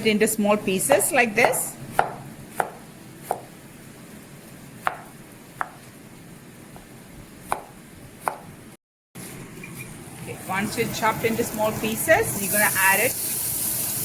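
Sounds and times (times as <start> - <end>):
knife chopping a tomato: 1.4 - 3.5, 4.8 - 5.8, 7.4 - 8.5.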